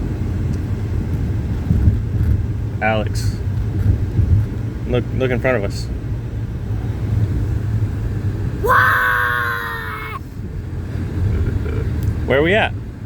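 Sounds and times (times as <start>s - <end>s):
car road rumble: 0.0s - 13.0s
high-pitched scream: 8.6s - 10.2s.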